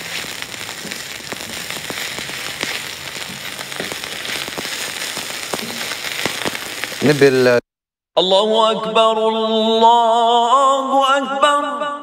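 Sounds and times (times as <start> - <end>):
chicken sizzling in oil: 0.0 - 7.6
spatula turning food in pan: 0.0 - 7.6.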